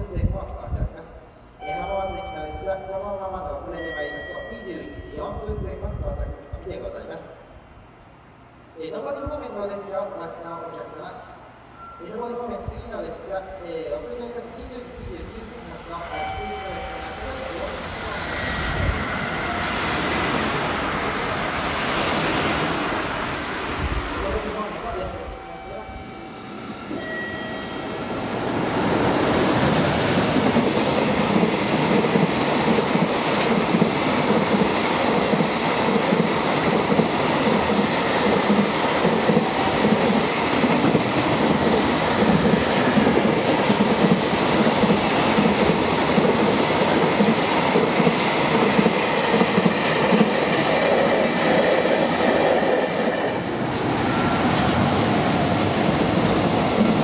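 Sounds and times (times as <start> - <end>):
train wheels clattering: 29.2 - 52.8.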